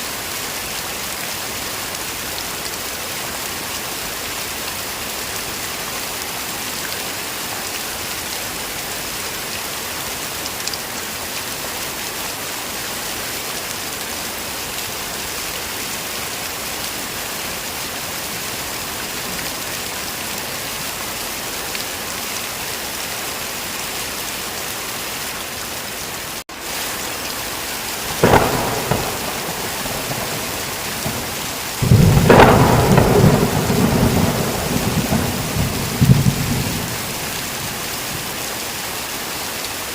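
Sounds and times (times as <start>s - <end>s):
heavy rain: 0.0s - 39.9s
rolling rumble of thunder: 28.1s - 38.3s
sharp thunderclap: 28.1s - 38.3s.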